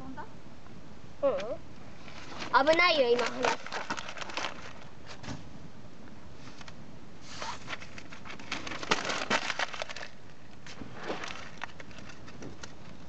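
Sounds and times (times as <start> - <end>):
burning paper crackling: 2.0 - 5.4, 6.4 - 13.0.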